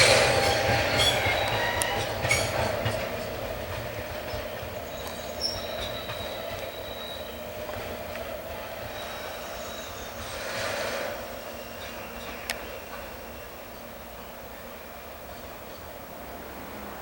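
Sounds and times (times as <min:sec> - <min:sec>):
high wheel squeal: 0:00.0 - 0:03.1, 0:04.8 - 0:07.4, 0:08.8 - 0:13.8
freight train rolling by: 0:00.0 - 0:17.0.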